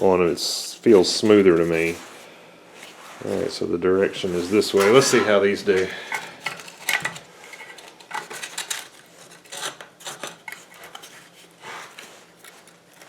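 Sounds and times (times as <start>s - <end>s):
metal parts clinking and scraping: 4.4s - 11.4s.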